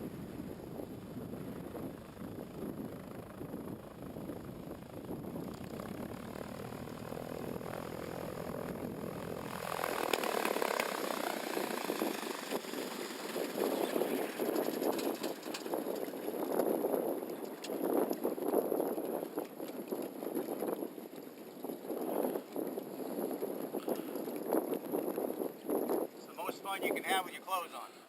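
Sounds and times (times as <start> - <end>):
distant propeller engine drone: 0.0 - 21.2
wind noise: 0.0 - 27.4.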